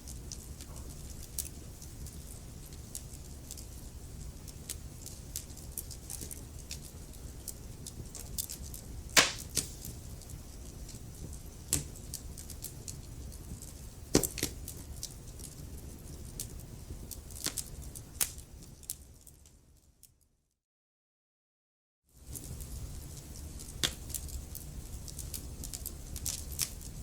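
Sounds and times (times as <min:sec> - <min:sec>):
sharp pops and snaps of fire: 0:00.1 - 0:19.5, 0:22.2 - 0:27.0
wood fire crackling: 0:00.1 - 0:19.5, 0:22.2 - 0:27.0
low rumble of flames: 0:00.1 - 0:19.7, 0:22.2 - 0:27.0.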